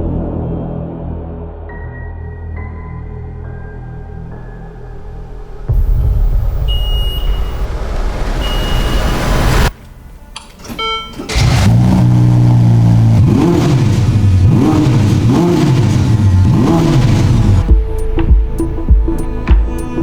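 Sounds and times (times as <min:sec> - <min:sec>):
short electronic beeps: 0:06.0 - 0:07.7, 0:08.4 - 0:09.7, 0:10.7 - 0:11.4
car engine revving: 0:11.2 - 0:17.7.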